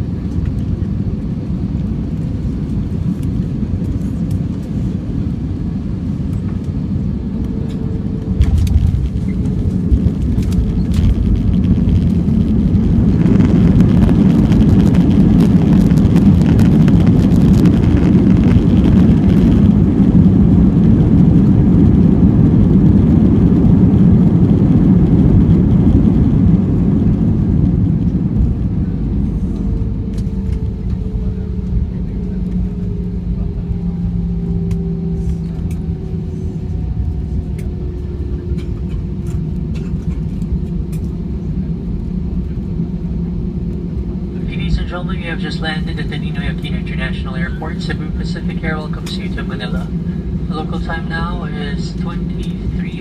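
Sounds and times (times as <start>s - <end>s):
jet engine reverse thrust roar: 0.0s - 53.0s
plane rattling over runway: 0.0s - 53.0s.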